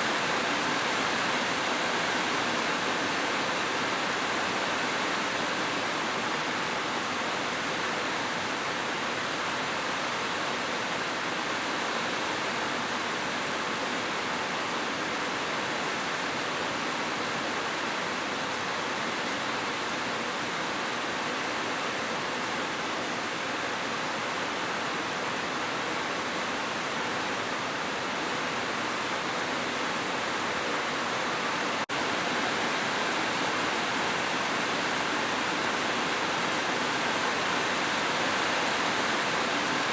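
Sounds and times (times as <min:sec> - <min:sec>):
heavy rain: 0:20.7 - 0:39.9.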